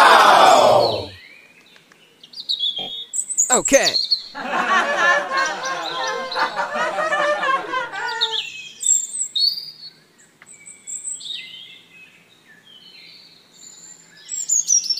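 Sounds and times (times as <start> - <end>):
birds chirping: 0.0 - 1.2, 2.6 - 8.8
person speaking: 3.5 - 4.0.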